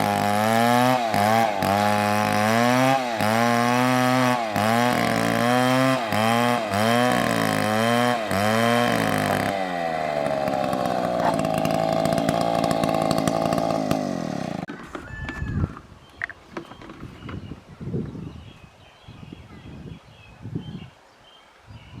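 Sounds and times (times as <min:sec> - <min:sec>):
chainsaw cutting wood: 0:00.0 - 0:15.1.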